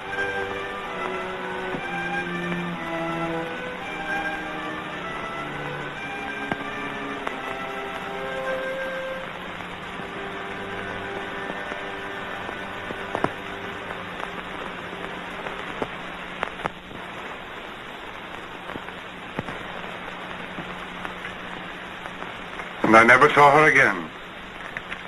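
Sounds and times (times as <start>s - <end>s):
faint held music notes: 0.0s - 16.8s
film soundtrack hiss and crackle: 0.0s - 25.0s
low steady hum: 0.0s - 25.0s.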